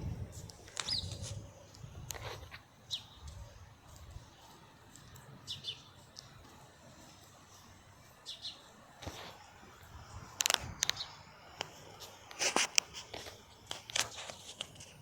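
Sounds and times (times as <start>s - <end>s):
bird chirps: 0.7s - 1.2s, 2.8s - 3.4s, 4.2s - 8.9s, 10.8s - 11.4s.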